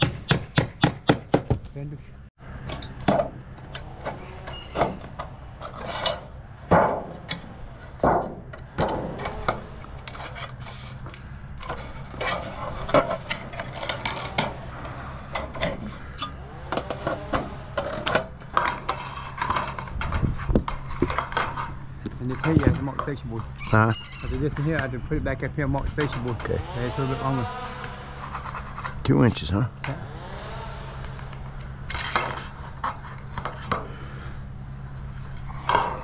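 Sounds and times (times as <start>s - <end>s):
steady low hum: 1.7s - 36.0s.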